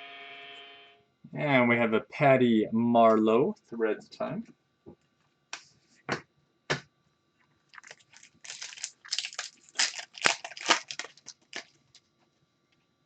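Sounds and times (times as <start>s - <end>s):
foil pack crinkling: 7.7s - 12.1s.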